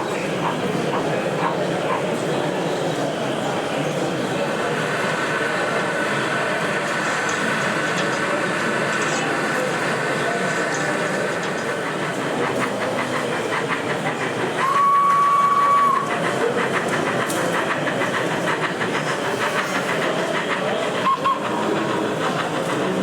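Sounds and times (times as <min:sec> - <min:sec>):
model train running: 0:00.0 - 0:23.0
model train whistle: 0:14.6 - 0:16.1, 0:21.0 - 0:21.5.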